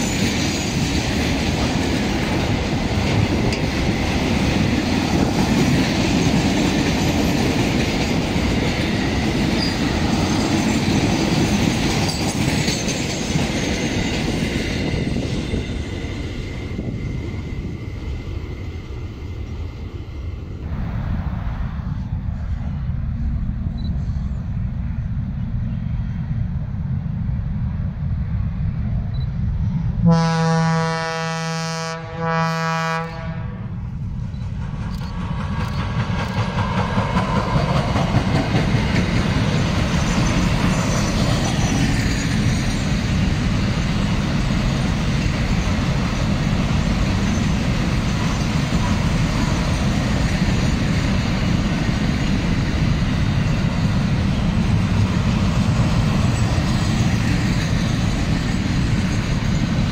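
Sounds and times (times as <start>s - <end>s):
train rumble and wheel clatter: 0.0s - 59.9s
train horn blasts: 30.0s - 33.8s.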